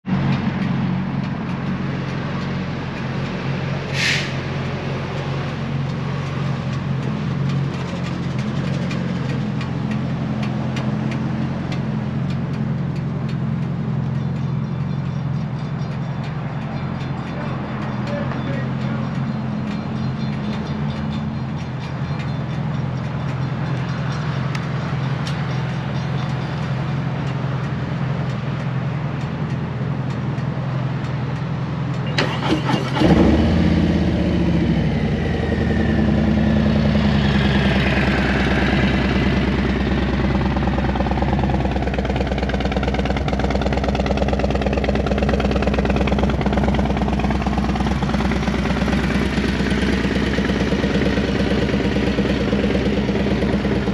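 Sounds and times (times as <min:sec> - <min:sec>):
motorcycle engine idling: 0:04.8 - 0:32.5, 0:33.1 - 0:53.9
motorcycle starter cranking: 0:31.1 - 0:35.7.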